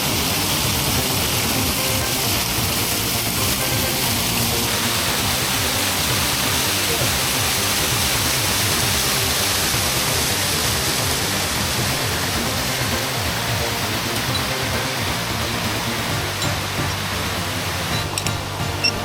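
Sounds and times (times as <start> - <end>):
background music: 0.0 - 19.0
waterfall rushing: 0.0 - 19.0.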